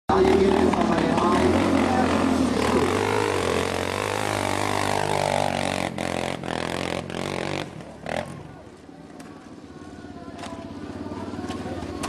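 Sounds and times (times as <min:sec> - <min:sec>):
motocross bike engine revving: 0:00.1 - 0:08.7.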